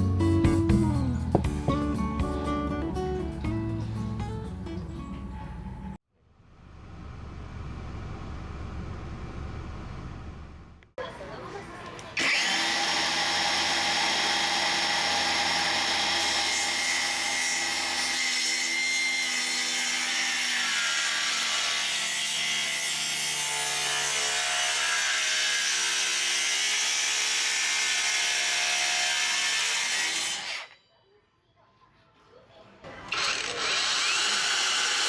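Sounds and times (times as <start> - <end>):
power saw cutting wood: 12.2 - 30.8, 32.9 - 35.0.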